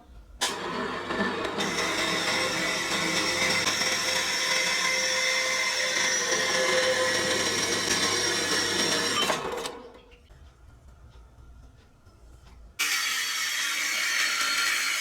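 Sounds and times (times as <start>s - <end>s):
small high-speed motor running: 1.1s - 9.8s.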